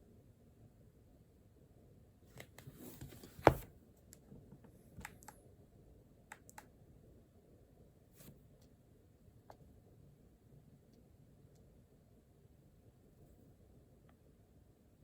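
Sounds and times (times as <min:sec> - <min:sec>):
rustle at a desk: 0:02.3 - 0:03.7.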